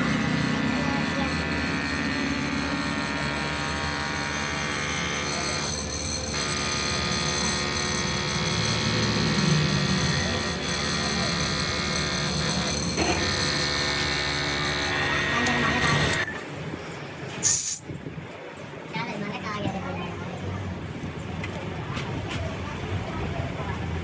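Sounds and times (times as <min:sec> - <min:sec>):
high machine whine: 0:00.0 - 0:16.4
machinery humming: 0:00.0 - 0:16.6.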